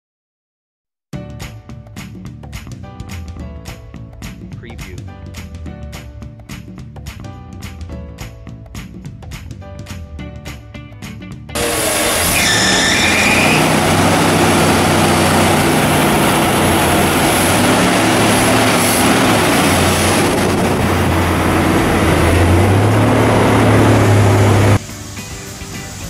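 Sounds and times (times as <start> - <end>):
car engine running: 11.6 - 24.8.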